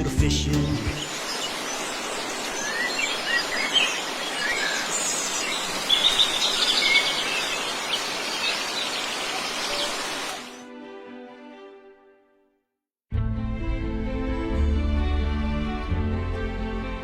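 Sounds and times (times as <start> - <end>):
rushing outdoor background: 0.0 - 10.6
wild birds chirping: 0.6 - 10.6.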